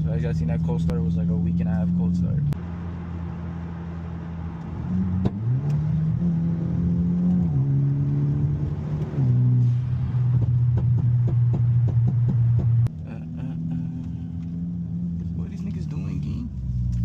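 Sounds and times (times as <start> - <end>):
car engine accelerating: 0.0 - 17.0
exhaust cracks: 8.4 - 17.0.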